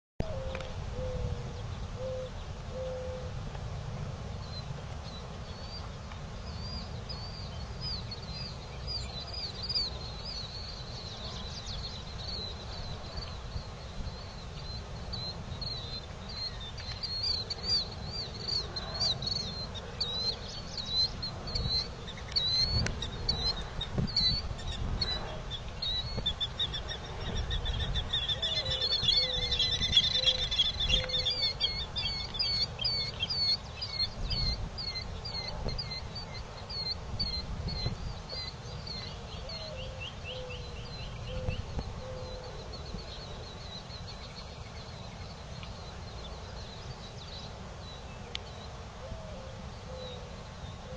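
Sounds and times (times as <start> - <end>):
low slow bird calls: 0.2 - 3.5, 4.3 - 50.9
low outdoor rumble: 0.2 - 50.9
birds chirping: 4.4 - 50.9
bird trill: 6.5 - 45.3.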